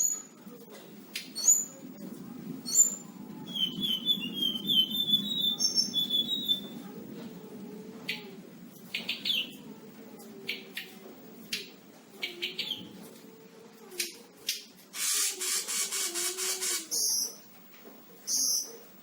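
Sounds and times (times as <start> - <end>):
songbird chirps and squawks: 2.6 - 6.8.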